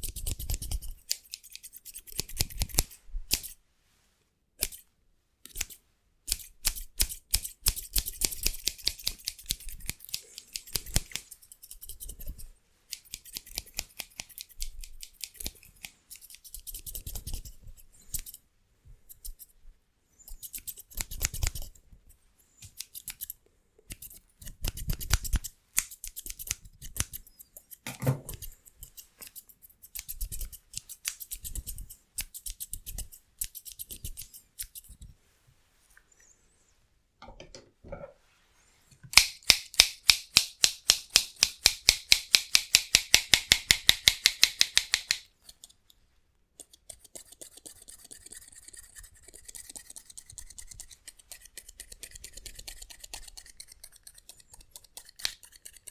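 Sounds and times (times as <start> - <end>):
scissors snipping rapidly: 39.1 - 45.8, 49.4 - 55.9.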